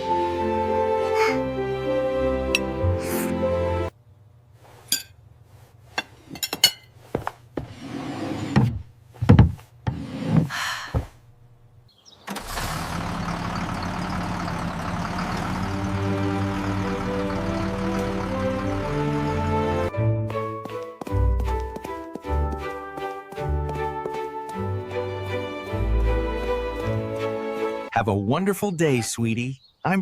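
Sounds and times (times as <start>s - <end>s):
soft music: 0.0s - 3.9s, 15.6s - 30.0s
thuds and rustles: 8.6s - 11.2s.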